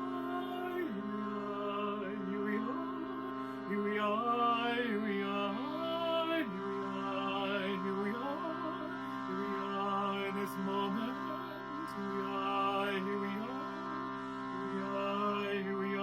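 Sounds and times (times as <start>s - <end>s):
steady drone: 0.0s - 16.0s
wordless vocal chanting: 0.0s - 16.0s.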